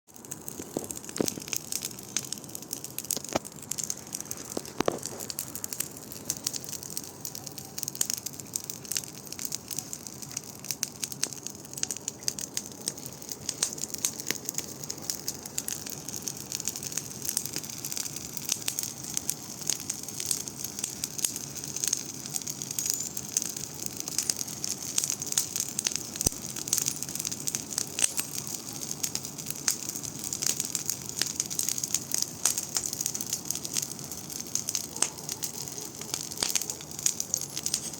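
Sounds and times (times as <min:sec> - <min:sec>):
bonfire crackling and popping: 0:00.1 - 0:37.9
rush of flame: 0:00.2 - 0:28.5.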